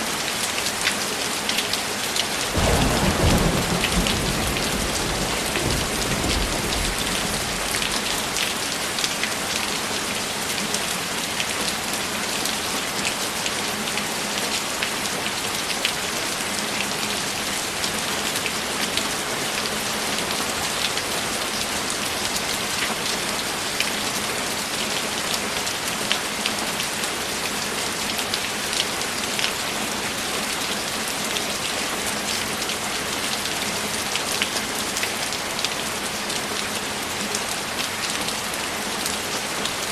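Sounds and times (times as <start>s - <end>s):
rain falling: 0.0s - 39.9s
low thunder rumble: 2.5s - 8.4s.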